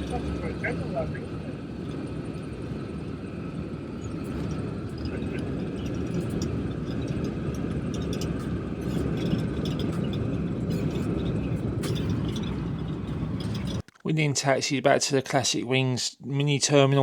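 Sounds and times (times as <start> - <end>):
aircraft engines rumbling: 0.0 - 13.8
light rattling clicks: 4.0 - 14.0.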